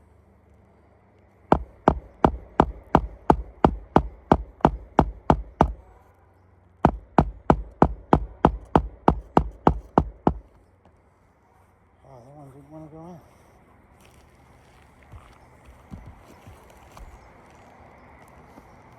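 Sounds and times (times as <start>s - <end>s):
hammer striking a roof: 1.5s - 5.8s, 6.8s - 10.6s.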